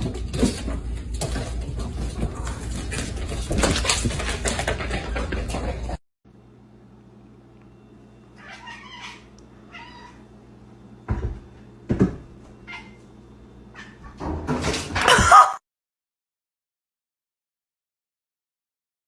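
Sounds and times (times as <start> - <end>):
cat meowing: 8.4 - 10.2.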